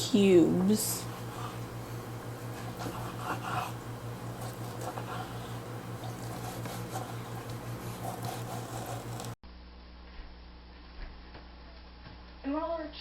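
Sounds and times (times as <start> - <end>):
steady electrical hum: 0.0 - 13.0
knife cutting raw chicken: 4.3 - 9.4.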